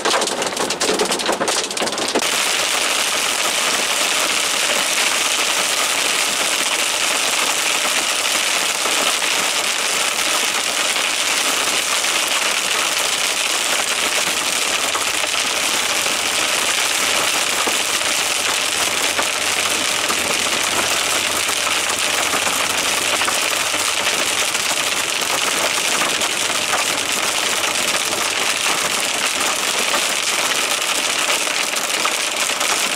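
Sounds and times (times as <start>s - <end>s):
heavy rain and hail pelting: 0.0s - 32.9s.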